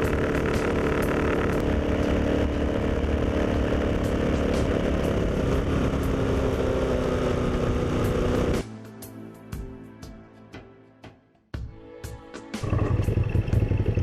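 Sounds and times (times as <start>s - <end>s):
motorcycle engine running: 0.0s - 8.6s, 12.6s - 14.0s.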